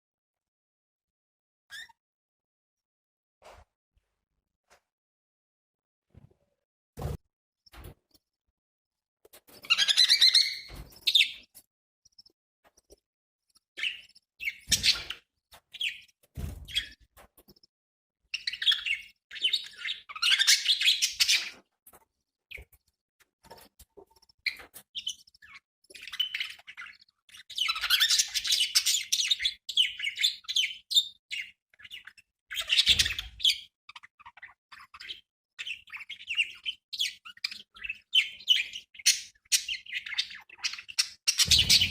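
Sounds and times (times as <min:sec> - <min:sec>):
budgerigars chattering and chirping: 0:09.7 - 0:11.4, 0:18.4 - 0:21.6, 0:24.5 - 0:41.9.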